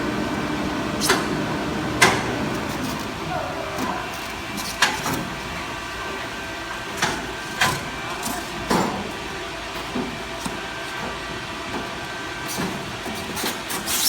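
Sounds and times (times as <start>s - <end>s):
welding machinery humming: 0.0s - 9.8s.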